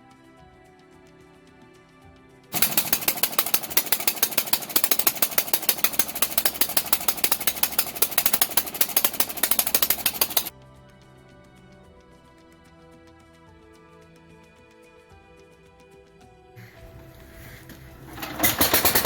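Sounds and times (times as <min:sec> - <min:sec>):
rapid mechanical clattering: 0:02.5 - 0:10.5, 0:16.6 - 0:19.0
quiet background music: 0:10.5 - 0:18.7.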